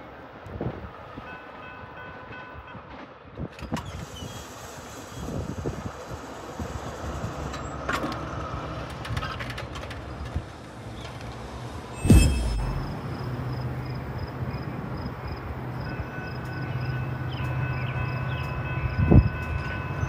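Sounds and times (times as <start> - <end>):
train wheels rumbling on rail: 0.1 - 20.0
sharp clicks of train wheels: 2.8 - 11.8.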